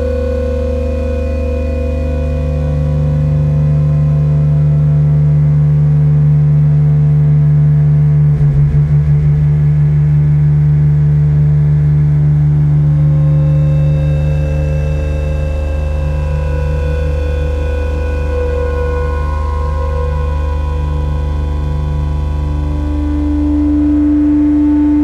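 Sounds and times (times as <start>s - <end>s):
synthesizer drone: 0.0s - 25.0s.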